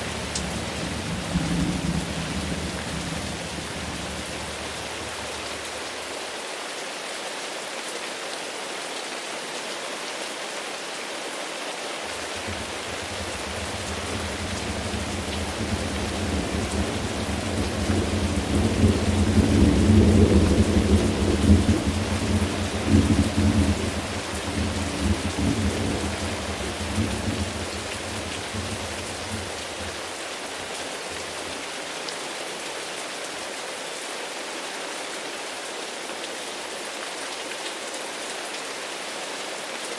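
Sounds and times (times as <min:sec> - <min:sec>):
rolling thunder: 0:00.0 - 0:05.8, 0:12.1 - 0:30.0
steady rain falling: 0:00.0 - 0:39.9.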